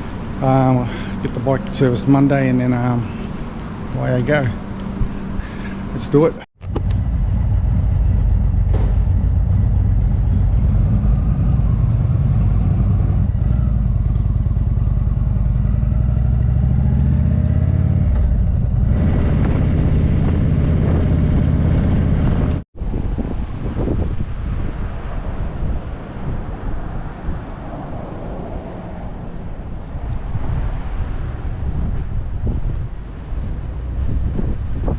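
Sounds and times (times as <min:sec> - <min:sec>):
motorcycle engine running: 0:06.6 - 0:16.8.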